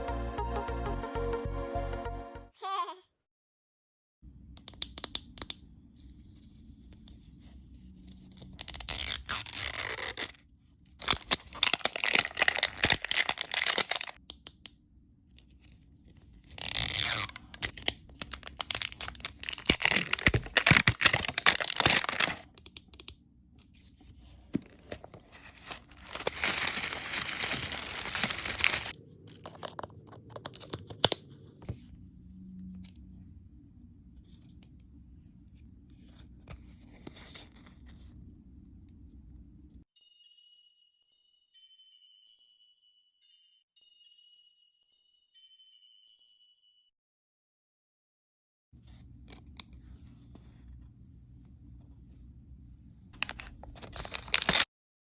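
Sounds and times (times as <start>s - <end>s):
packaging tearing and crinkling: 8.5s - 14.2s, 16.5s - 22.5s, 24.7s - 29.8s, 53.2s - 54.7s.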